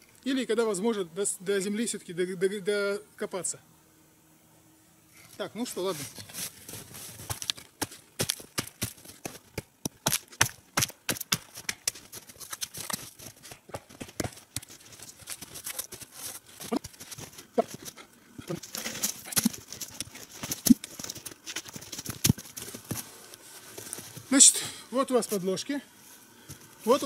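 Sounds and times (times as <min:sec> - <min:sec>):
footsteps crunching in snow: 0:05.4 - 0:24.5, 0:25.1 - 0:27.0.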